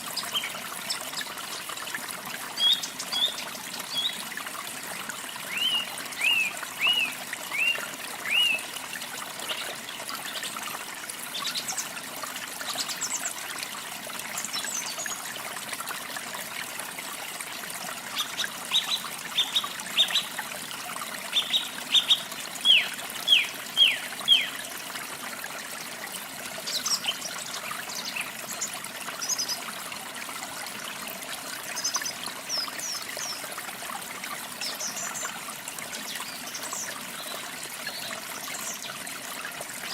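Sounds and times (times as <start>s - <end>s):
trickling stream: 0.0s - 39.9s
songbirds singing: 2.5s - 4.3s, 5.4s - 8.7s, 18.1s - 20.4s, 21.3s - 24.6s, 26.6s - 29.7s, 31.7s - 33.5s.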